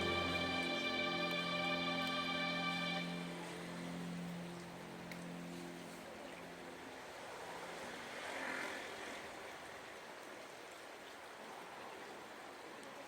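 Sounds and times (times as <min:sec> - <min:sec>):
heavy rain: 0:00.0 - 0:09.5.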